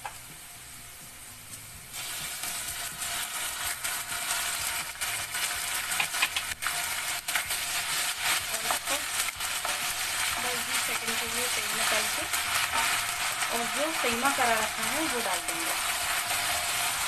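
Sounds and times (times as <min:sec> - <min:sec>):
onions sizzling in hot oil: 0:00.0 - 0:17.0
wooden spatula scraping pan: 0:07.8 - 0:17.0.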